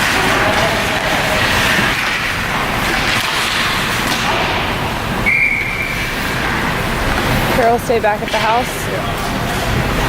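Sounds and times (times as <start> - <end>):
whistle blast: 5.2 - 6.1.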